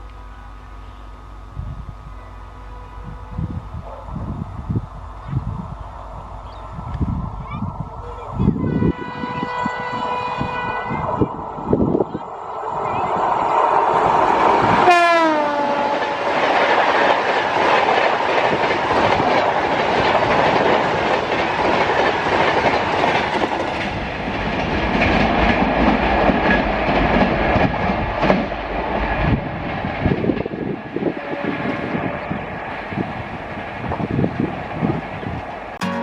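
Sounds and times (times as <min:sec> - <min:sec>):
locomotive horn: 0:02.2 - 0:03.8, 0:08.5 - 0:11.3, 0:14.8 - 0:16.4, 0:31.2 - 0:32.4, 0:35.8 - 0:36.0
train coaches rumbling: 0:02.2 - 0:36.0.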